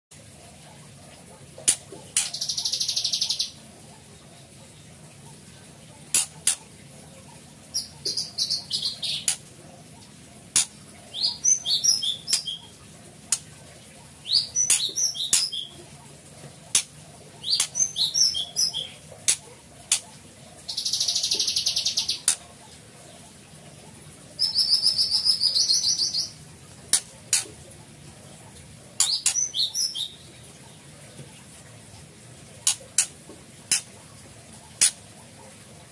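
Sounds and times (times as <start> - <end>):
songbirds singing: 1.7 - 27.5, 28.2 - 31.3
sharp clicking bird notes: 6.1 - 6.6, 9.1 - 9.5, 10.5 - 10.8, 14.6 - 15.6, 18.6 - 20.1, 32.6 - 33.9.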